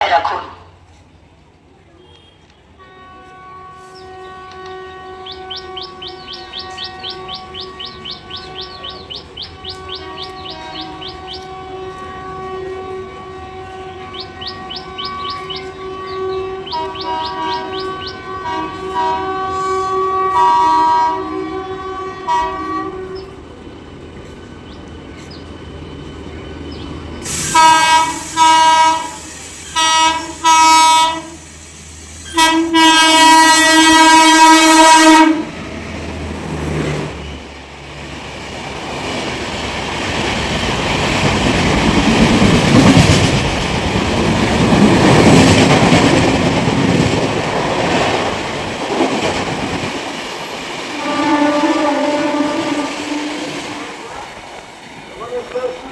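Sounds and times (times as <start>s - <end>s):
train running and wheel clatter: 0.0s - 55.9s
train horn blasts: 2.0s - 23.4s, 27.3s - 35.6s, 50.9s - 54.2s.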